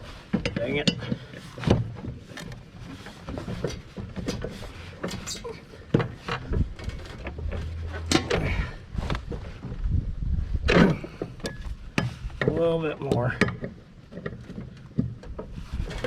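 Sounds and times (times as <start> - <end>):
hand tools clanking on metal: 0.4 - 8.8, 10.7 - 14.9.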